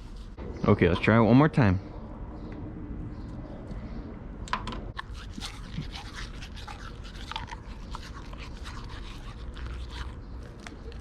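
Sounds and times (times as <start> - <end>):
dog chewing a toothbrush: 5.0 - 11.0.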